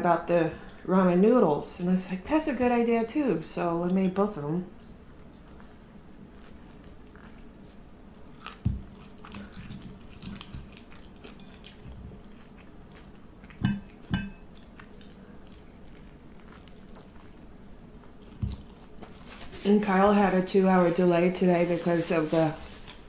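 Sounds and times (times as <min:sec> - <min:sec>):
person chewing: 0:04.8 - 0:19.2.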